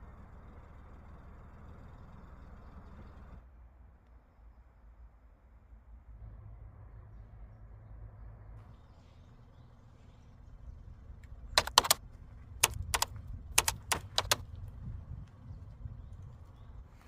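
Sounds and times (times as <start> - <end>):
sharp clicks and clinks: 11.6 - 12.0, 12.6 - 14.4
faint low rumble: 14.4 - 17.0.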